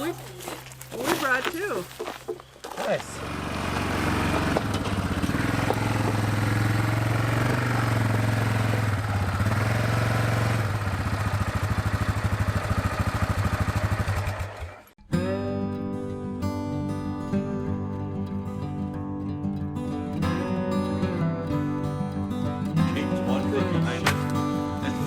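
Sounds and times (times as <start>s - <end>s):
vehicle engine idling: 3.2s - 14.9s
acoustic guitar music: 15.0s - 25.0s.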